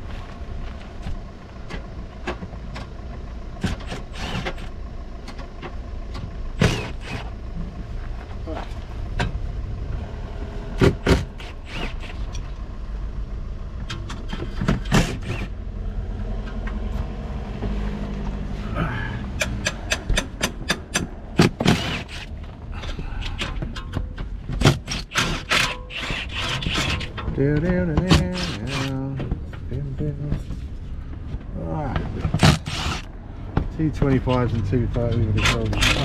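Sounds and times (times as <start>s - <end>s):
steady low rumble: 0.0s - 36.0s.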